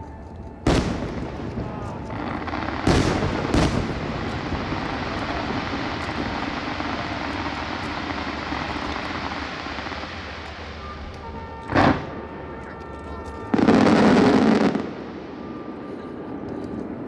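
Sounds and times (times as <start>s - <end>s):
faint firework crackles: 0.0s - 17.0s
firework boom: 0.7s - 7.1s.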